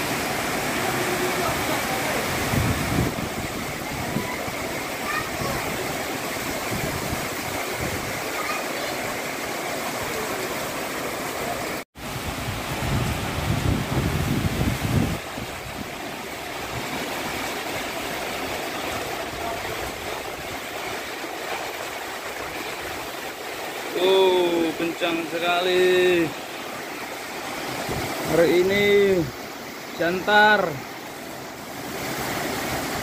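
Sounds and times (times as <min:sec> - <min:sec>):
strong wind rushing: 0:02.4 - 0:04.7, 0:12.1 - 0:15.9
wind buffeting microphone: 0:02.4 - 0:04.8, 0:06.4 - 0:08.2, 0:12.3 - 0:16.0, 0:27.6 - 0:28.3.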